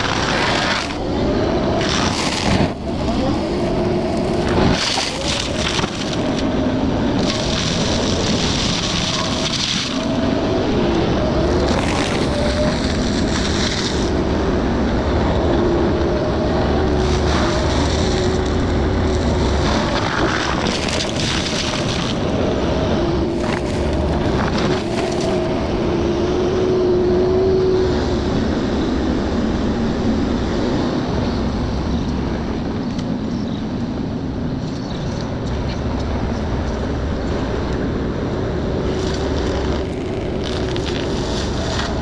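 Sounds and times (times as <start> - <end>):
mulcher grinding through brush: 0.0 - 1.1, 1.8 - 14.4, 16.8 - 25.6, 38.8 - 42.0.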